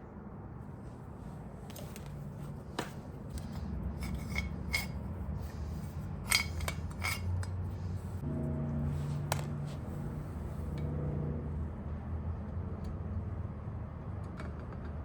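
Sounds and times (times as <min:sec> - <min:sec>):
low steady hum: 0:00.0 - 0:14.4
metal tools clinking: 0:03.3 - 0:05.0, 0:06.2 - 0:07.6.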